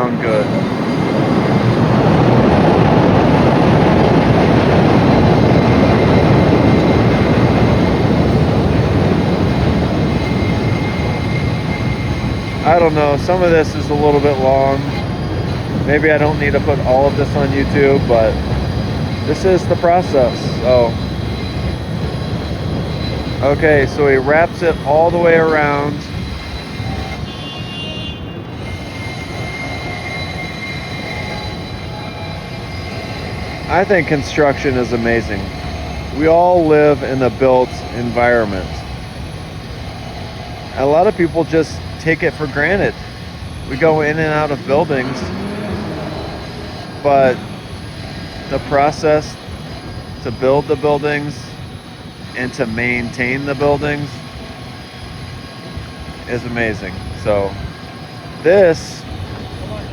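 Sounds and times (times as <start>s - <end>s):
high wheel squeal: 0.0s - 59.9s
train rumbling on steel tracks: 0.0s - 59.9s.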